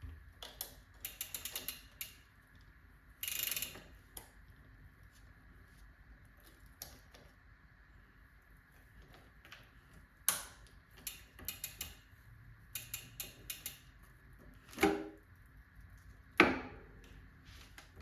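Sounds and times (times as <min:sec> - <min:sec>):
bicycle chain clicking: 0:00.6 - 0:02.4, 0:03.2 - 0:04.4, 0:10.3 - 0:14.1.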